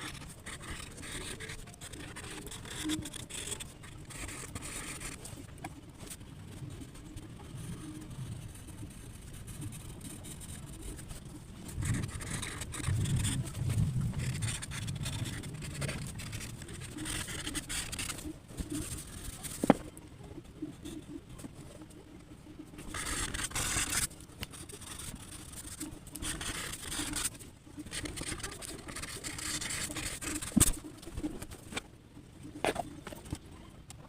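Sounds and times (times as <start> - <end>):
pencil scratching on paper: 0.0 - 5.2, 7.6 - 19.8, 22.8 - 30.8.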